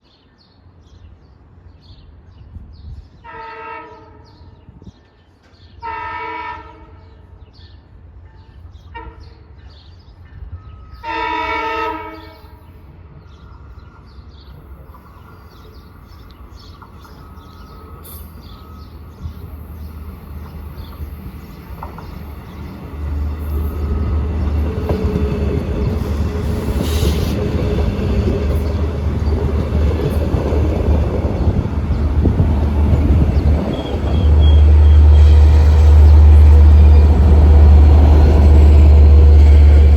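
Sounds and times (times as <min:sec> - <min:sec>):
train horn: 0:03.2 - 0:04.6, 0:05.8 - 0:07.2, 0:08.9 - 0:09.6, 0:10.9 - 0:12.8, 0:33.7 - 0:39.9
train engine and wheels rumbling: 0:04.0 - 0:39.9.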